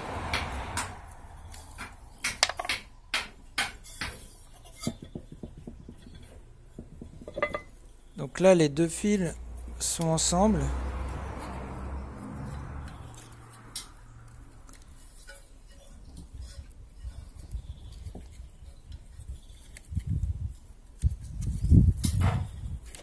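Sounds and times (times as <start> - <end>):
clicks of handled metal parts: 1.5 - 2.8.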